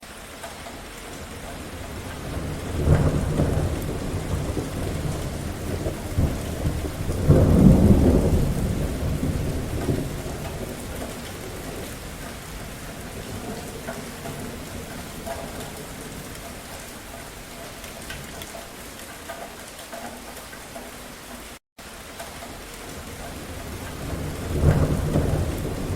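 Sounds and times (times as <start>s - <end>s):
steady rain falling: 0.0s - 25.9s
thunder rumbling: 1.2s - 17.0s, 22.9s - 25.9s.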